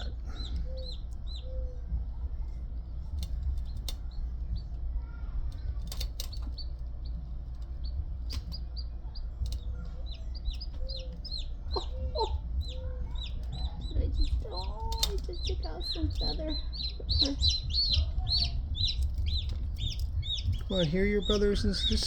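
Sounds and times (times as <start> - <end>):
chicks peeping: 0.0 - 22.0
sharp clicks: 10.4 - 22.0.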